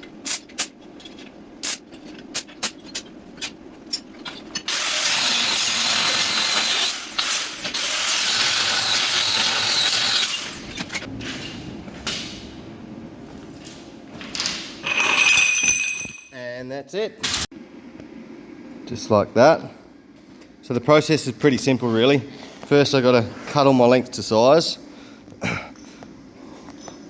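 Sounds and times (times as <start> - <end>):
welding arc crackling: 1.6 - 2.7
metal parts clinking: 14.3 - 16.4.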